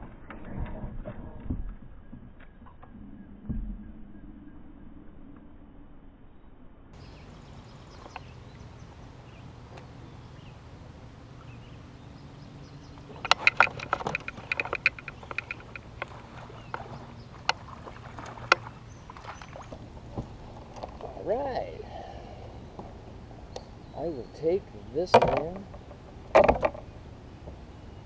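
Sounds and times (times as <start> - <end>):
steady low hum: 2.4 - 28.0
rattling knocks of gear: 13.0 - 18.7, 25.0 - 27.6
sharp clicks: 13.1 - 16.1.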